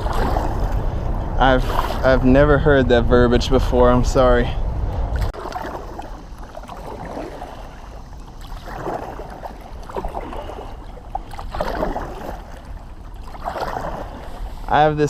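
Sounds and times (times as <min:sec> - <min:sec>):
paddle splashing in water: 0:00.0 - 0:02.4, 0:05.1 - 0:14.8
wind rumble on microphone: 0:00.0 - 0:15.0.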